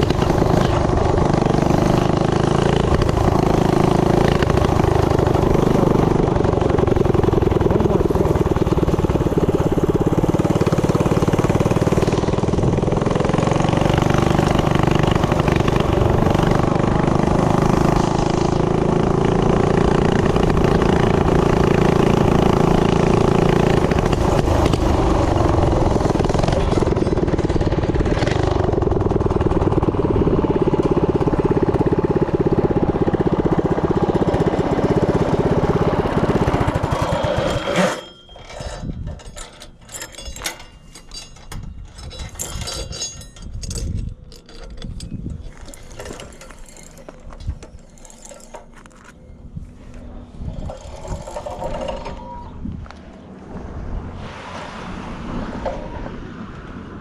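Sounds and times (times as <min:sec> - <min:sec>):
mini bike engine running: 0:00.0 - 0:39.6, 0:45.3 - 0:53.1
wind on microphone: 0:38.7 - 0:39.4, 0:41.5 - 0:45.8, 0:49.3 - 0:57.0.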